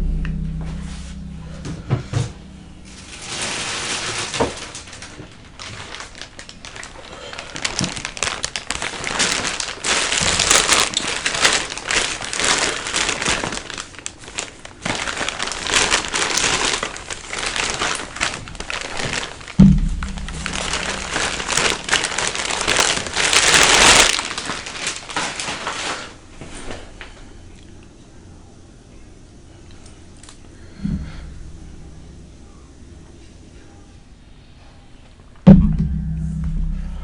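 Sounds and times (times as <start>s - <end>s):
plastic wrapper crinkling: 2.4s - 26.2s.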